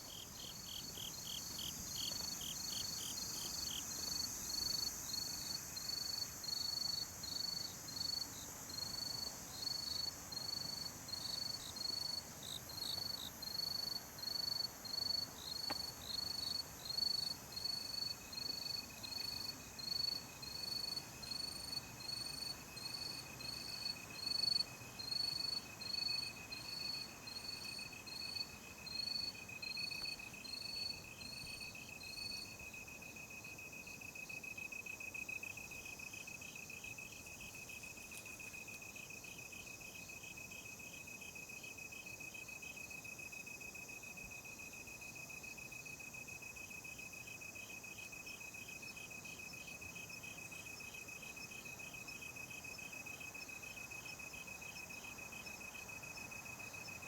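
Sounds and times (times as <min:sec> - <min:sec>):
cricket chirping: 0:00.0 - 0:57.0
lower steady insect trill: 0:00.0 - 0:57.0.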